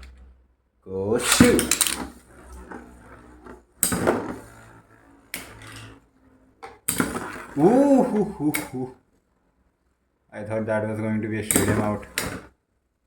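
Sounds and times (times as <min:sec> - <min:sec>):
spinning tops whirring: 0:01.0 - 0:09.0, 0:11.3 - 0:12.5
spinning tops clashing: 0:01.2 - 0:06.0, 0:06.6 - 0:08.8, 0:11.5 - 0:12.5
person exclaiming: 0:07.6 - 0:09.0.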